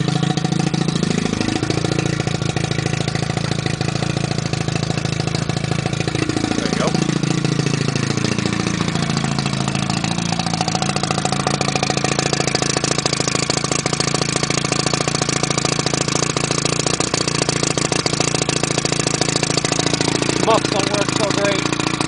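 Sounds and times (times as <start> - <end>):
outboard motor idling: 0.0 - 22.0.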